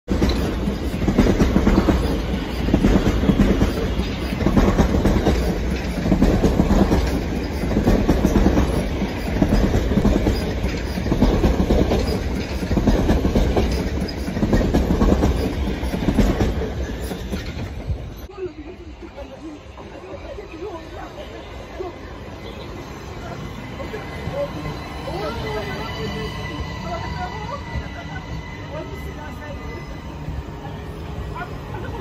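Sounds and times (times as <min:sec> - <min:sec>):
electric train passing at speed: 0:00.1 - 0:32.0.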